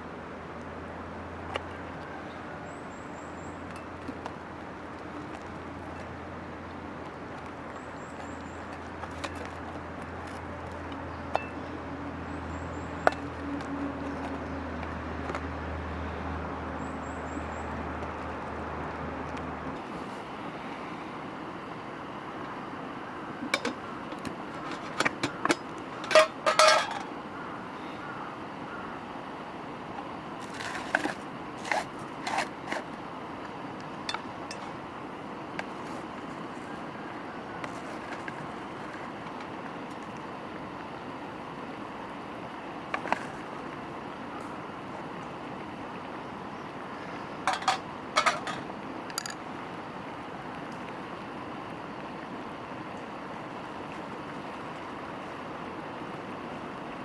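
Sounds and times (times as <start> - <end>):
low steady hum: 0.0 - 57.0
tableware clinking: 23.5 - 23.8, 24.6 - 27.1, 47.5 - 48.6.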